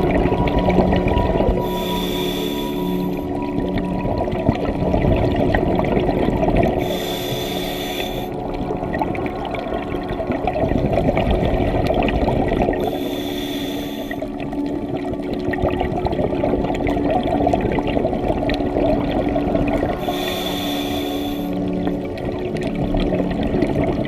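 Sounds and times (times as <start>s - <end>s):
steady low hum: 0.0s - 4.1s, 6.5s - 11.7s, 19.4s - 22.1s
bubbling exhaled air: 0.0s - 24.0s
hissing inhale through regulator: 1.6s - 3.4s, 6.8s - 8.5s, 12.8s - 14.3s, 20.0s - 22.1s.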